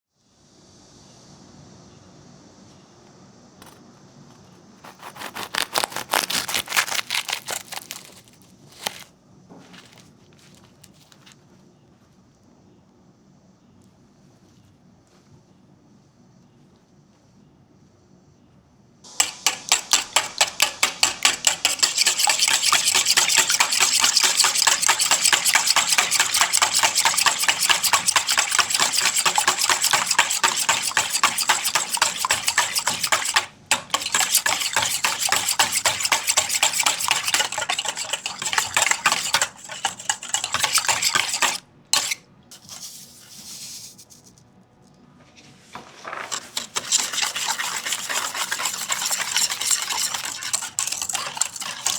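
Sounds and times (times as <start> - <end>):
utensil scraping bowl: 3.6 - 9.1, 19.1 - 44.2, 46.0 - 51.9
utensil beating against bowl: 4.8 - 8.2, 19.1 - 42.9, 46.3 - 51.9.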